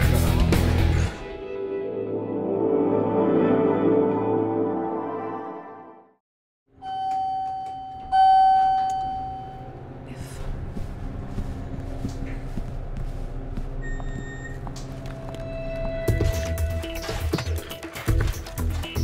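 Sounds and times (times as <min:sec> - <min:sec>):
elevator chime: 0:06.8 - 0:09.9, 0:13.8 - 0:16.1
steady low hum: 0:08.4 - 0:16.9.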